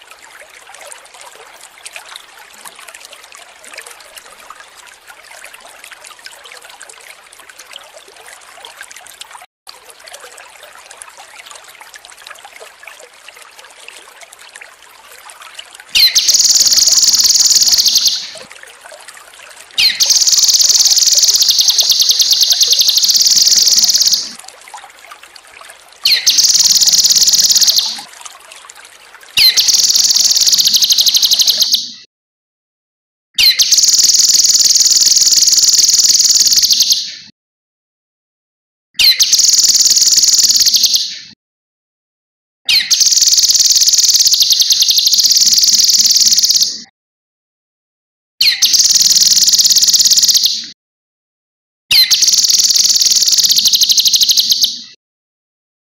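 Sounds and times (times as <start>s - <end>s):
water trickling: 0.0s - 31.8s, 33.7s - 36.9s, 39.3s - 40.9s, 42.9s - 46.6s, 48.7s - 50.3s, 52.1s - 54.3s
bird singing rapid high phrases: 15.9s - 18.4s, 19.8s - 24.4s, 26.0s - 28.0s, 29.4s - 32.0s, 33.4s - 37.3s, 39.0s - 41.3s, 42.7s - 46.8s, 48.4s - 50.7s, 51.9s - 54.9s.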